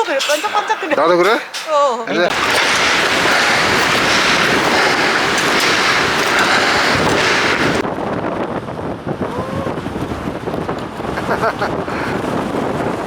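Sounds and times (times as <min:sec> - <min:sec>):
strong wind blasting microphone: 0:02.2 - 0:13.0.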